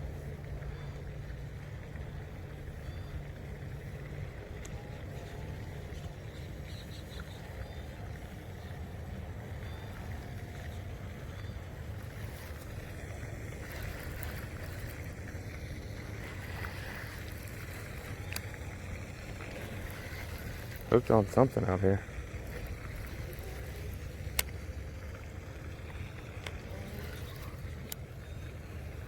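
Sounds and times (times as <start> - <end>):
low outdoor rumble: 0.0 - 29.0
faint clicks: 18.1 - 18.6, 22.5 - 24.6, 25.8 - 28.2.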